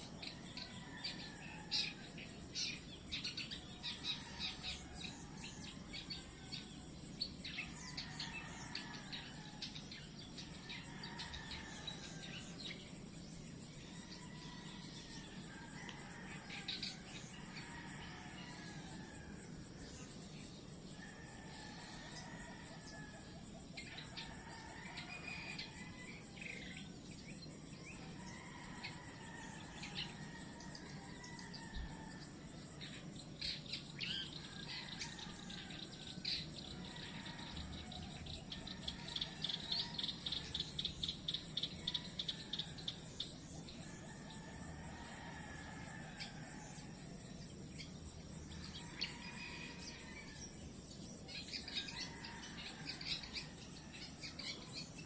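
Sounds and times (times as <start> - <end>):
birds calling and chirping: 0.0 - 55.0
outdoor ambience hiss: 0.0 - 55.0.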